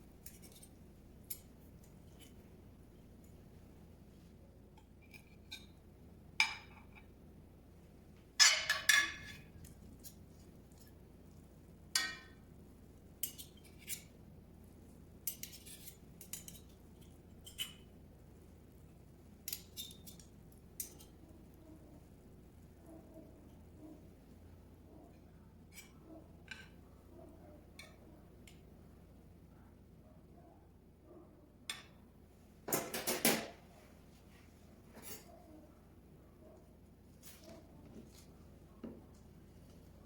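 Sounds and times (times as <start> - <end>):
utensils clinking against dishes: 8.4 - 10.2.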